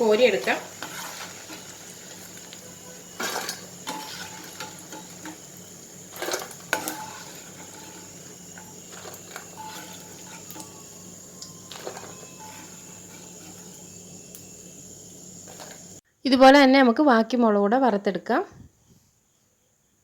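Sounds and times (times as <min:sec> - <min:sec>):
spoon scraping a pan: 0:00.0 - 0:14.4, 0:15.4 - 0:16.0
oil sizzling: 0:00.0 - 0:16.0.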